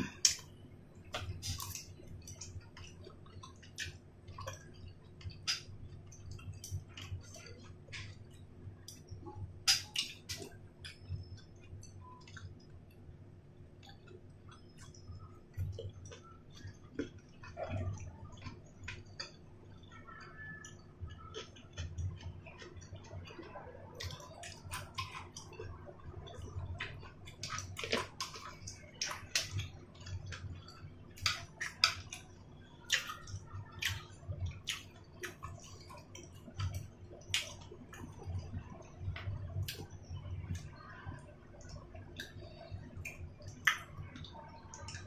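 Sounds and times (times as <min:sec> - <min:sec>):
person chewing with wet mouth sounds: 0:00.0 - 0:45.0
mouth clicks and smacks: 0:41.6 - 0:45.0.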